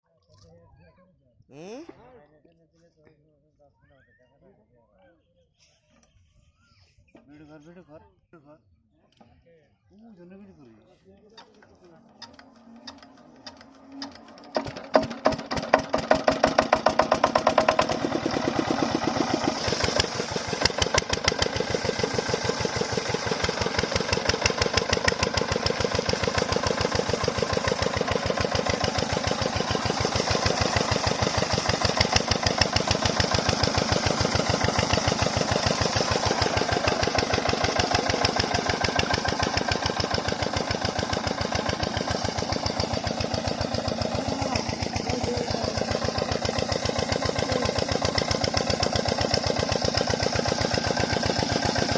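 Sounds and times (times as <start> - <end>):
diesel engine starting and knocking: 11.3 - 51.9.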